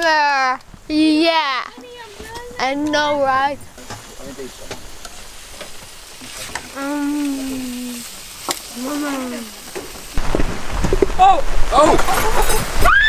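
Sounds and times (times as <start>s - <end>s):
crackling hiss: 0.0s - 13.0s
person making drawn-out vocal sounds: 6.8s - 8.0s.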